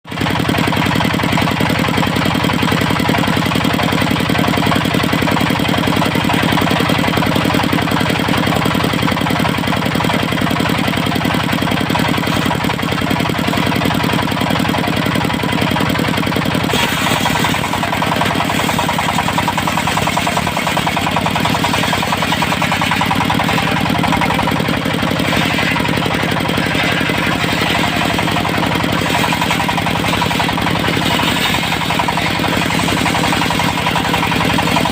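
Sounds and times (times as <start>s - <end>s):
diesel engine clattering: 0.0s - 34.9s.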